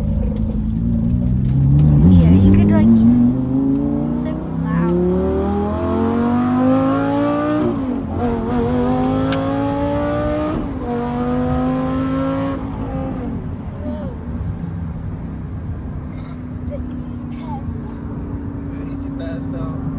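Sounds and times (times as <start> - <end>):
car engine accelerating hard: 0.0 - 19.9.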